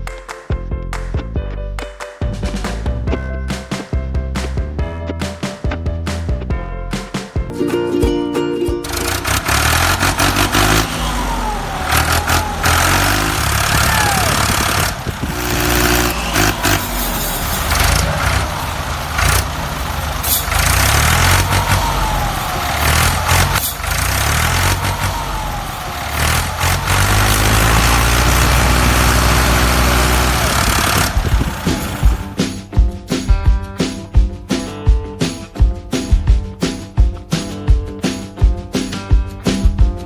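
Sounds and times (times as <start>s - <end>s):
motor running and revving: 9.2s - 19.6s, 20.5s - 21.9s, 22.8s - 32.2s.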